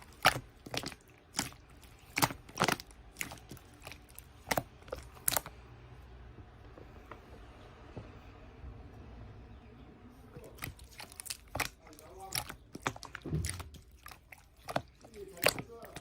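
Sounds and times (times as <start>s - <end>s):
slime snapping and crackling: 0.0s - 5.5s, 10.5s - 16.0s.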